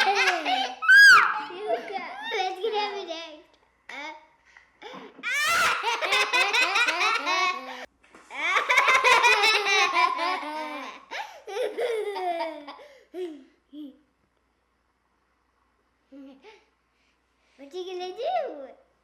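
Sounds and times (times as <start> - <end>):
young children laughing: 0.0 - 4.1, 4.8 - 13.5.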